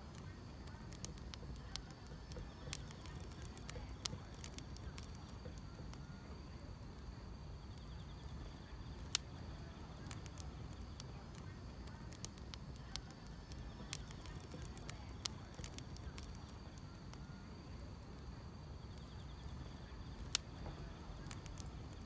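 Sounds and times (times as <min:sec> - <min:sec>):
field insects chirring: 0:00.0 - 0:22.0
wood fire crackling: 0:00.0 - 0:22.0.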